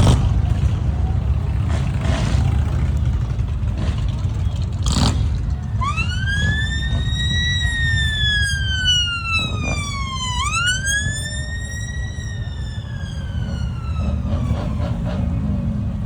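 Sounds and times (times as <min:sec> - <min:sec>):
electronic siren wailing: 0:05.7 - 0:15.4.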